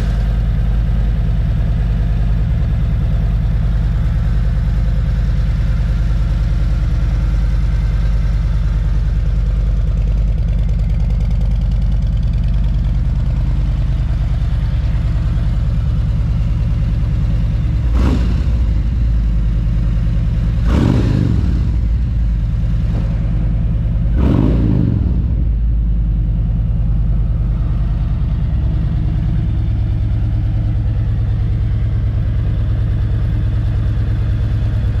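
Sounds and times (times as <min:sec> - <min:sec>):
motorcycle engine idling and revving: 0:00.0 - 0:35.0.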